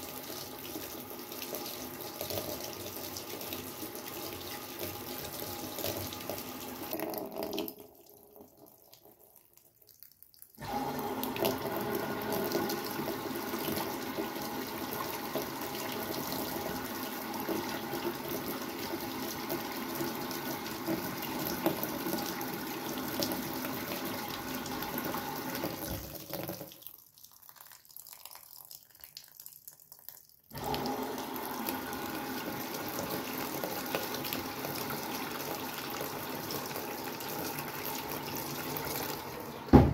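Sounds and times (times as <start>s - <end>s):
water running in washing machine: 0.0s - 9.2s, 10.6s - 26.8s, 30.5s - 39.9s.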